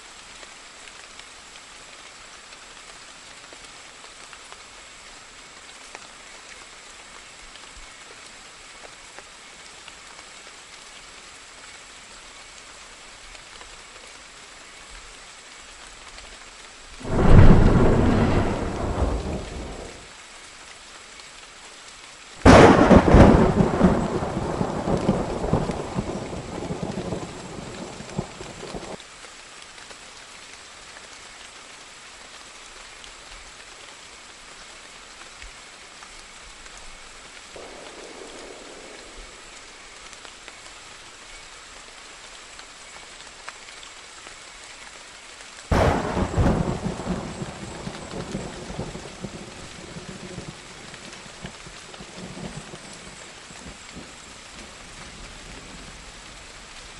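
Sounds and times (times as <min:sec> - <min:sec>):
steady rain: 0:00.0 - 0:56.9
thunder claps: 0:17.0 - 0:20.0, 0:22.5 - 0:27.3, 0:37.6 - 0:39.4, 0:45.7 - 0:49.3.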